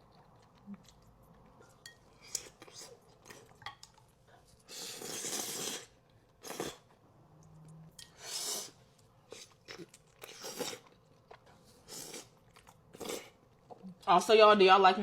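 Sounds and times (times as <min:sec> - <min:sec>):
chewing: 0:00.0 - 0:08.2, 0:08.9 - 0:13.9
noisy bite or slurp: 0:04.7 - 0:06.9.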